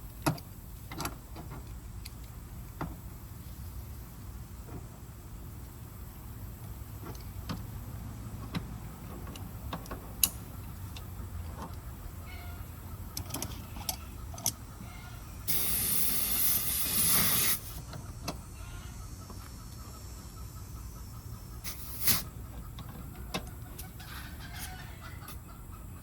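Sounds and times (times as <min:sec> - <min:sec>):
tools clicking and tapping: 0:13.1 - 0:14.6
refrigerant gas hissing: 0:15.4 - 0:17.8, 0:21.6 - 0:22.4.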